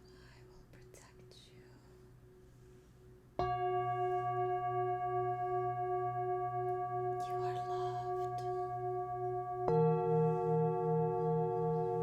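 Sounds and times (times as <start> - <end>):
singing bowl ringing: 3.4 - 12.0.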